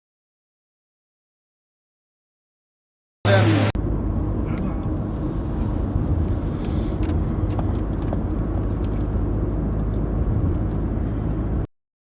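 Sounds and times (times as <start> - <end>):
car engine and road rumble: 3.3 - 11.7.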